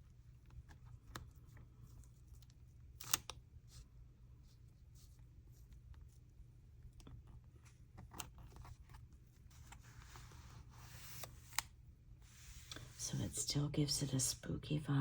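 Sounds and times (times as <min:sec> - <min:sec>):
low steady hum: 0:00.0 - 0:15.0
paper rustling: 0:07.0 - 0:11.6.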